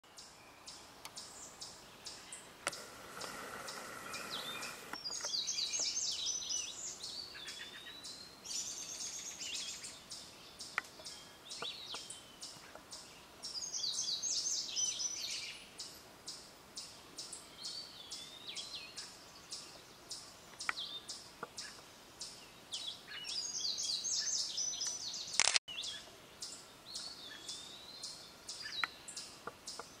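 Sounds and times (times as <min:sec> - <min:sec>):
songbird singing: 0:00.0 - 0:30.0
sharp click: 0:24.8 - 0:25.6.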